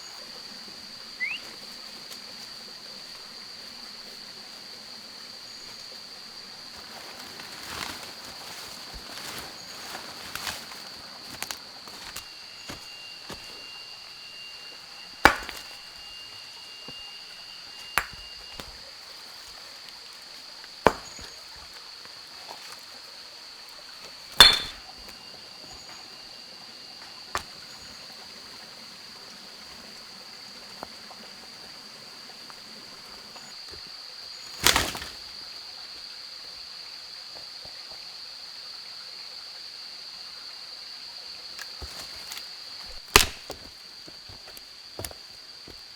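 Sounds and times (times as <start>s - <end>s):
high-pitched insect drone: 0.0s - 37.1s
sharp knocks or chops: 15.3s - 15.7s, 24.4s - 24.8s.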